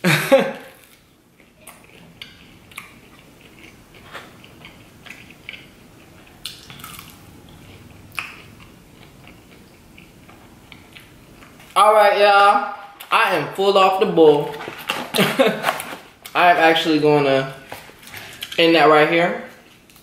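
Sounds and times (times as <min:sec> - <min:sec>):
chewing with soft crackles: 0:00.7 - 0:11.8.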